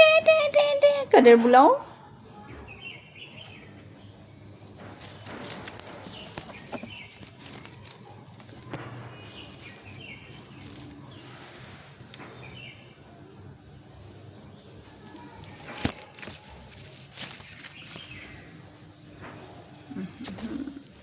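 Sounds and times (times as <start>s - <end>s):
rustling: 4.7s - 21.0s.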